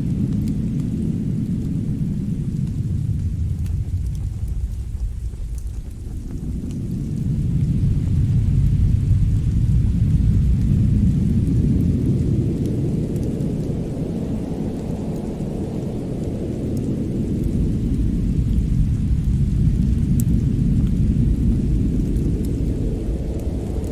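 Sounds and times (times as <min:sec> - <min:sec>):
deep steady rumbling: 0:00.0 - 0:23.9
fireplace fire crackles: 0:00.0 - 0:23.9.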